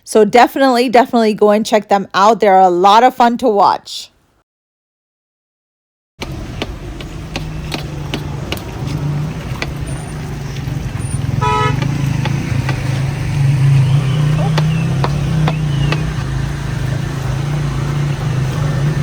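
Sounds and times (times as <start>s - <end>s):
vehicle engine humming: 6.2s - 19.0s
car horn toot: 11.3s - 12.0s.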